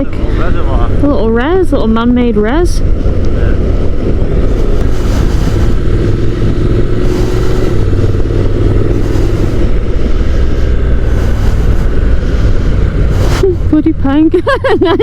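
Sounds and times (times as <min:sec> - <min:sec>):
wind rushing: 0:00.0 - 0:14.4
motorcycle engine running: 0:00.0 - 0:15.0.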